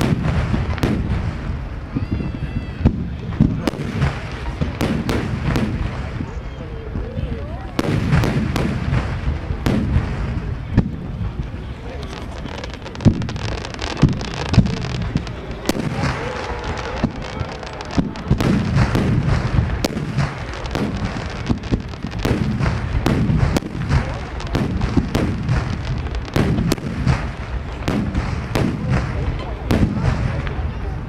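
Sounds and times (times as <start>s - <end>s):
firework crackle: 0.0s - 31.0s
firework shells bursting: 12.0s - 30.6s.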